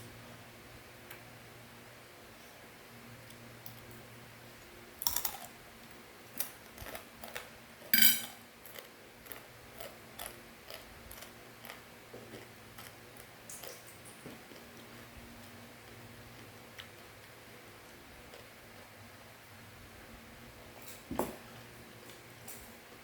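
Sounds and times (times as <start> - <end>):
crunchy snack being eaten: 5.0 - 5.6, 8.6 - 14.0
ringing clink: 8.0 - 8.4.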